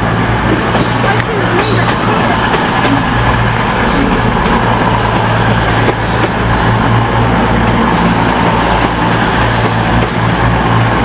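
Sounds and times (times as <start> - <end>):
train diesel engines droning: 0.0 - 11.0.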